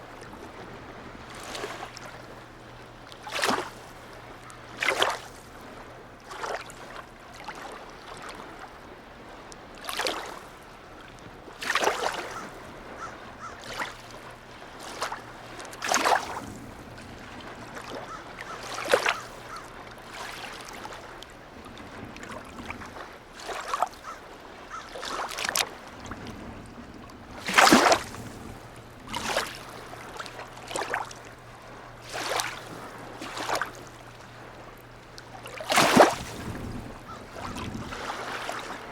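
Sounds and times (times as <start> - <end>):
small waves lapping and splashing: 0.0 - 38.9.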